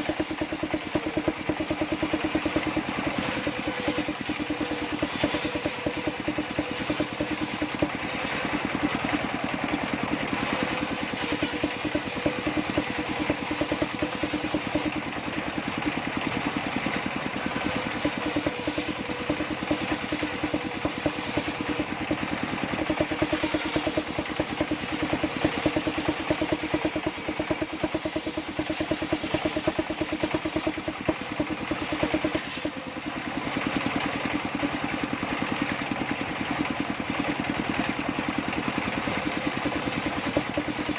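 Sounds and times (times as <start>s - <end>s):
saw bench engine running: 0.0s - 40.9s
saw cutting wood hiss: 0.1s - 9.0s, 10.3s - 15.0s, 17.4s - 22.0s, 22.7s - 32.4s, 38.8s - 40.9s.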